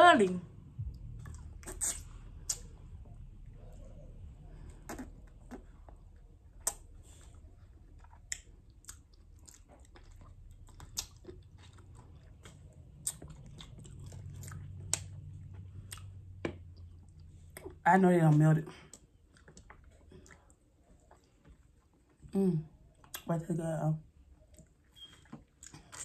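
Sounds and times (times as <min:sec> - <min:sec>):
wet mouth clicks and smacks: 0:00.9 - 0:02.8, 0:06.6 - 0:06.9, 0:10.8 - 0:15.2
cherries being bitten and chewed: 0:01.1 - 0:03.0, 0:04.6 - 0:17.8, 0:25.2 - 0:26.0.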